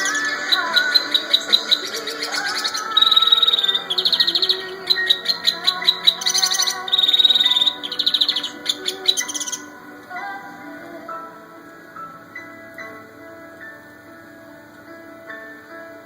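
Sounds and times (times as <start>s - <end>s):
canary singing: 0.0s - 10.6s
background music: 0.0s - 16.0s.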